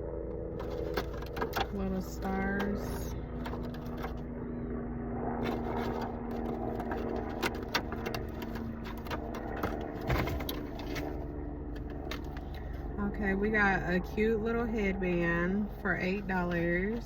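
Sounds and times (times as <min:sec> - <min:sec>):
steady low hum: 0:00.0 - 0:17.0
packaging rustling and scraping: 0:00.6 - 0:04.4, 0:05.4 - 0:12.8.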